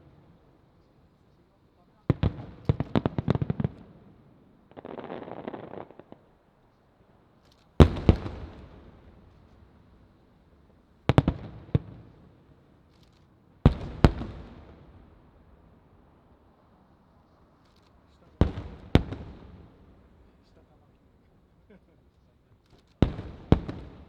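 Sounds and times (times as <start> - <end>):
firework crackling: 4.6 - 6.5.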